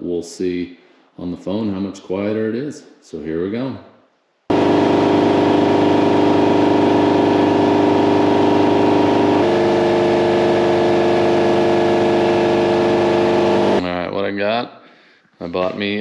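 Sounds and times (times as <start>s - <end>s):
air compressor pulsing drone: 4.5s - 13.8s.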